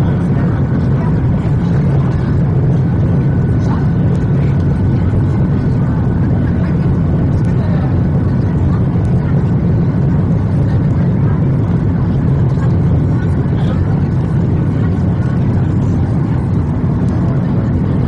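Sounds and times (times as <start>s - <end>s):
airplane cabin engine rumble: 0.0s - 18.0s.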